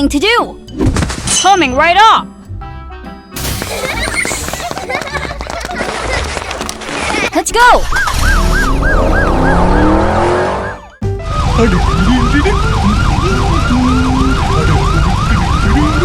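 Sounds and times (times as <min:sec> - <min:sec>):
police siren wailing: 0:07.9 - 0:16.0.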